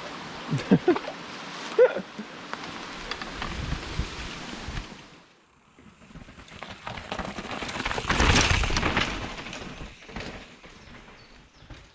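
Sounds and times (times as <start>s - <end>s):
bike tyre noise on dirt: 2.4s - 11.9s
bike clicks and rattles: 2.5s - 11.9s.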